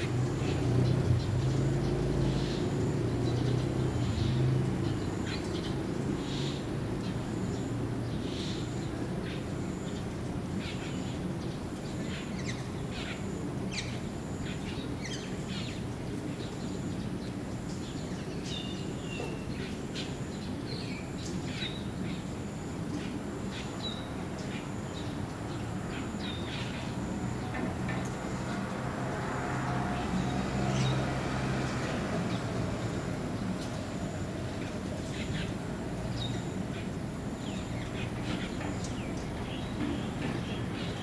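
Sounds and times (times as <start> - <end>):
birds chirping and calling: 34.6 - 41.0.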